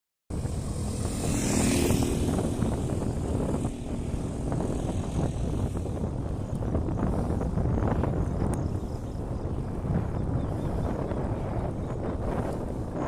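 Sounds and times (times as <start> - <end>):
motor engine: 0.3 - 7.5
wind rumbling on microphone: 0.3 - 13.0.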